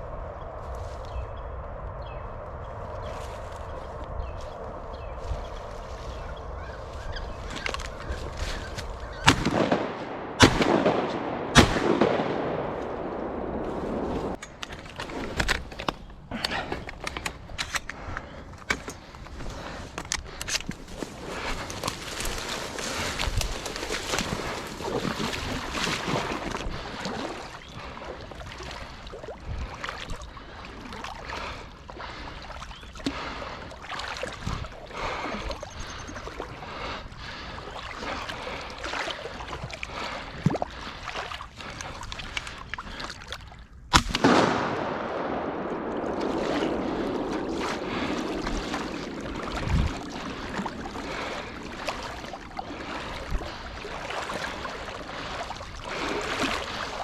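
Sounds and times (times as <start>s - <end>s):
water sloshing and splashing: 13.6s - 43.9s, 45.1s - 57.0s
rush of moving water: 19.1s - 43.6s, 44.5s - 57.0s.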